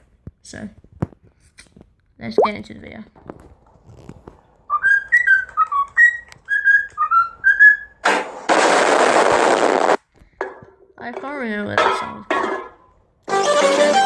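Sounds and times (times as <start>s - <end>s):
whistled tune: 4.7s - 8.0s.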